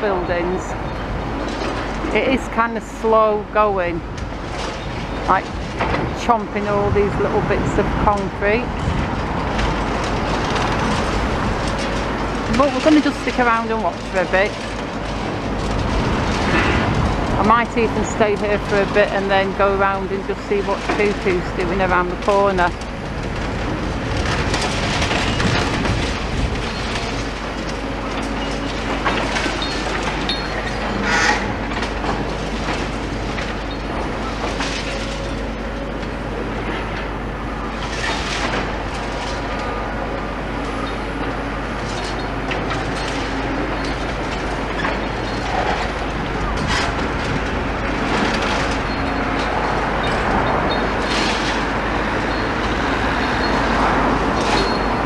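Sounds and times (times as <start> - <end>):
excavator running: 0.0 - 55.0
concrete crunching and cracking: 8.2 - 36.0.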